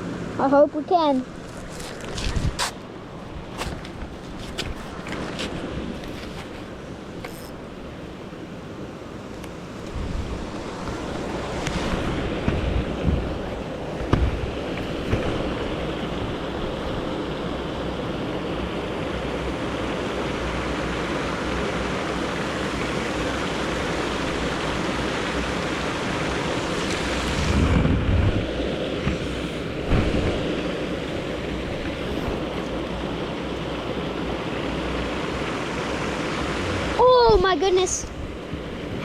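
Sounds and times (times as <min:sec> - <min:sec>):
low wind buffets: 0:00.0 - 0:39.0
wind on microphone: 0:01.4 - 0:08.4, 0:09.6 - 0:19.2, 0:26.0 - 0:33.2, 0:36.4 - 0:39.0.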